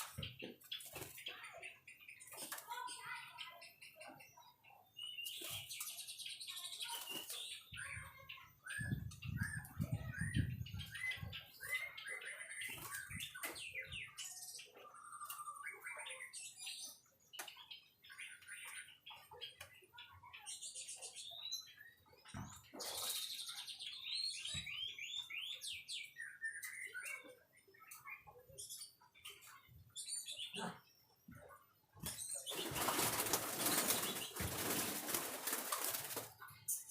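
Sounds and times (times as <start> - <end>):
bird singing whistles and trills: 3.7 - 19.1, 22.8 - 30.8.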